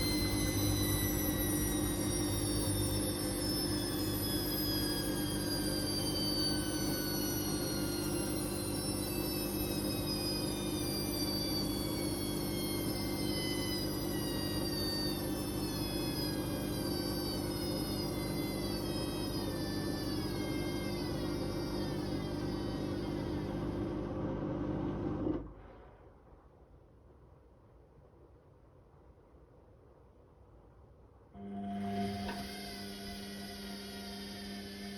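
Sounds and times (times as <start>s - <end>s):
high whine falling in pitch: 0.0s - 24.2s, 31.4s - 34.9s
washing machine running: 0.0s - 25.4s, 31.4s - 34.9s.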